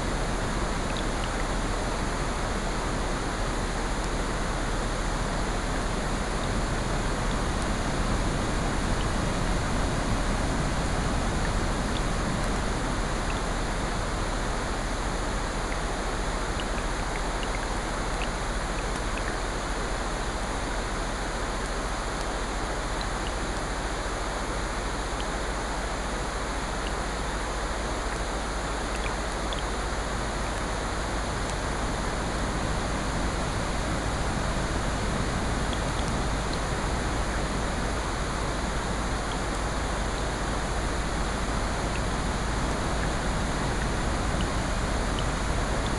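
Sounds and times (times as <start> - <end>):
steady rain: 0.0 - 45.9
ocean surf: 31.4 - 45.9.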